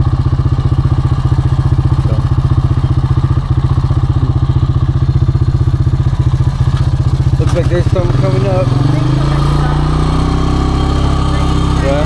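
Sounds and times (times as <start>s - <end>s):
engine chugging at low revs: 0.0s - 12.0s.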